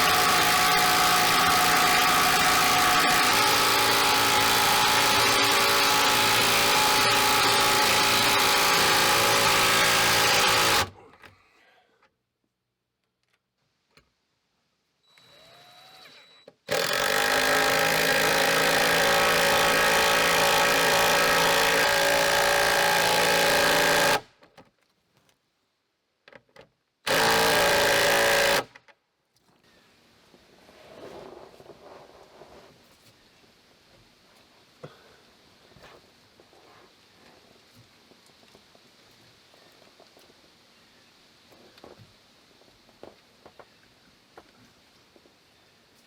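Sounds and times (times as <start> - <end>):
impact driver driving bolts into wood: 0.0 - 11.0, 16.7 - 24.3, 27.1 - 28.8.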